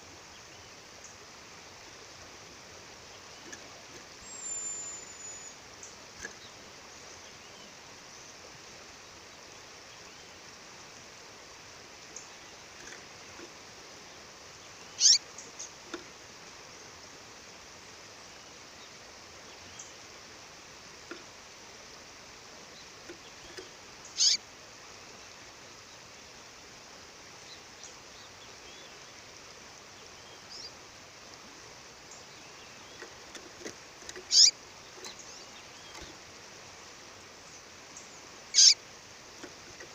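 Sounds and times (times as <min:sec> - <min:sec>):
faint bird chirps: 0:02.9 - 0:08.4, 0:14.0 - 0:15.9, 0:22.7 - 0:24.4, 0:29.9 - 0:30.8, 0:34.0 - 0:36.2, 0:37.4 - 0:38.8
songbird calling: 0:02.9 - 0:08.4, 0:12.1 - 0:16.2, 0:22.7 - 0:24.5, 0:29.9 - 0:30.8, 0:32.0 - 0:36.3, 0:37.4 - 0:39.9.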